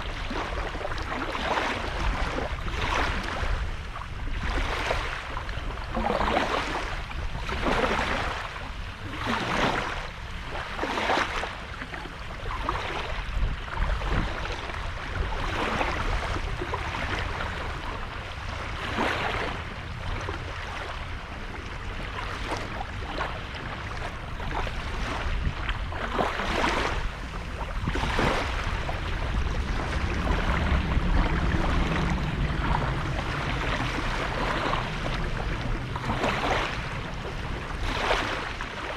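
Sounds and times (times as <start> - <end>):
small waves washing onto shore: 0.0 - 38.9
steady low rumble: 13.4 - 38.9.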